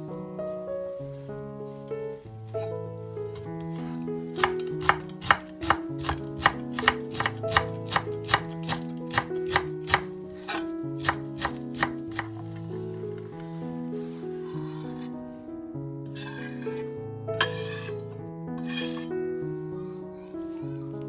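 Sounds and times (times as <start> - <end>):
background music: 0.0 - 21.0
knife chopping on cutting board: 3.8 - 12.4.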